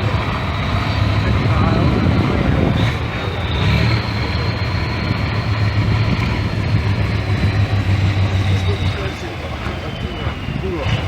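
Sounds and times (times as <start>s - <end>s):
heavy truck engine running: 0.0s - 11.0s.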